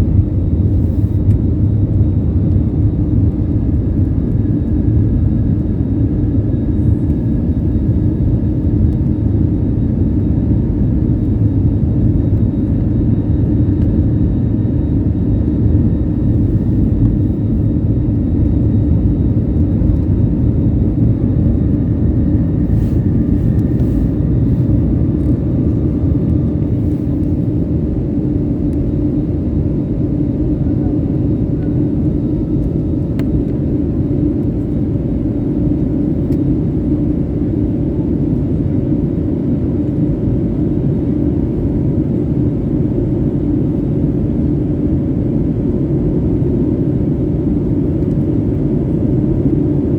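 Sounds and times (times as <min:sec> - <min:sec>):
jet engine rumble in cabin: 0:00.0 - 0:49.9.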